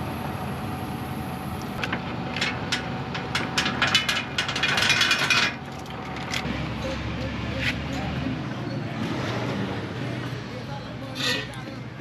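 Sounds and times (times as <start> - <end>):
forklift engine running: 0.0 - 6.9
sharp metal clicks and clanks: 1.8 - 6.5.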